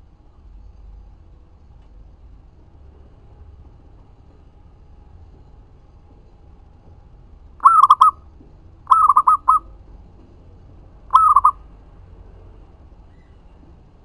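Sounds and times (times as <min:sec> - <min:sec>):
dove cooing: 0:07.6 - 0:08.2, 0:08.9 - 0:09.7, 0:11.1 - 0:11.6.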